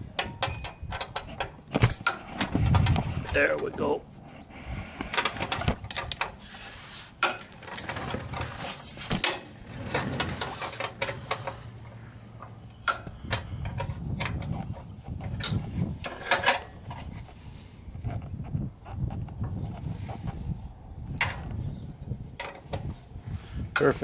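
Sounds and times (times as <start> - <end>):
tools and parts clicking and rubbing: 0.0 - 3.8, 5.0 - 17.3.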